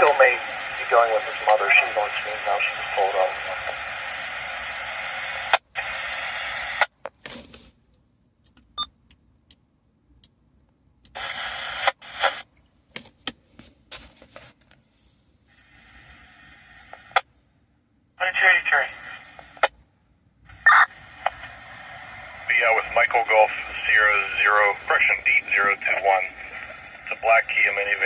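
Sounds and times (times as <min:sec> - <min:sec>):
radio static bursts: 0:20.5 - 0:28.0.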